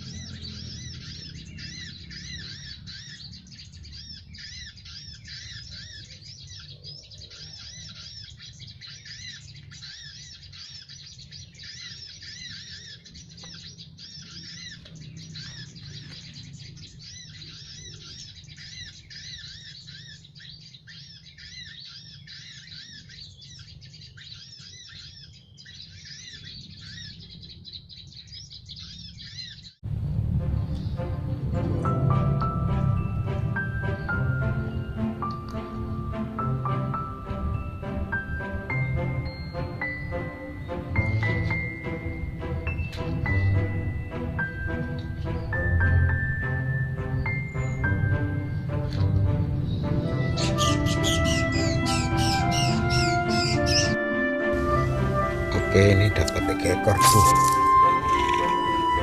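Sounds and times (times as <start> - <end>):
songbirds chirping: 0.0 - 59.0
low hum: 29.8 - 36.3.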